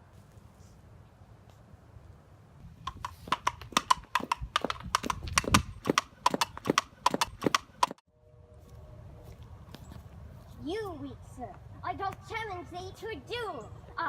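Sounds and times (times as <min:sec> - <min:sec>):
mock horse hooves clip-clop: 0:02.8 - 0:08.0.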